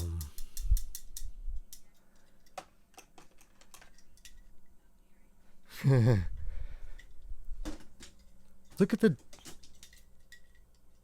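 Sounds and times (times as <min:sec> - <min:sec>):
toy trucks clicking and knocking: 0:00.0 - 0:04.5.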